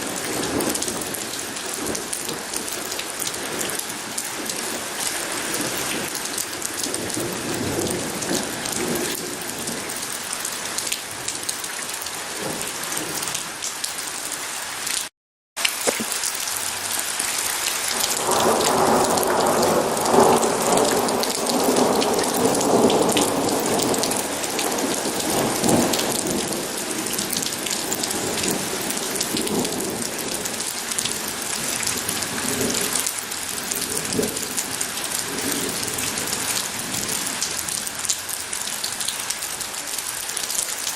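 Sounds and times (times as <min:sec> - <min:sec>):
rain pattering: 0:00.0 - 0:40.9
thunder rumbling: 0:17.9 - 0:30.6.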